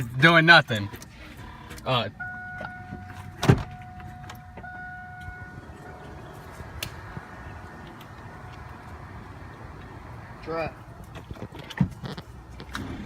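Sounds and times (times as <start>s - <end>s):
car electronic warning tone: 2.1s - 6.7s.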